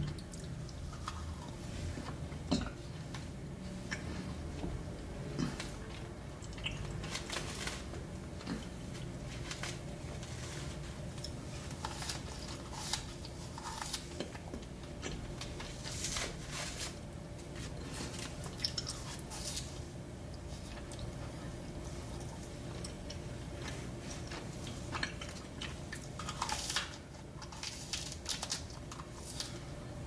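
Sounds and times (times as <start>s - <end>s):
wet chewing and crunches: 5.4s - 15.6s, 17.8s - 21.1s, 22.0s - 29.5s.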